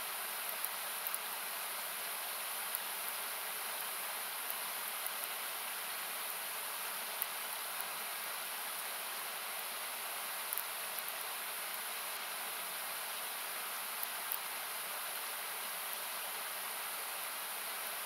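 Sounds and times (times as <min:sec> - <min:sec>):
campfire popping and crackling: 0:00.5 - 0:01.4.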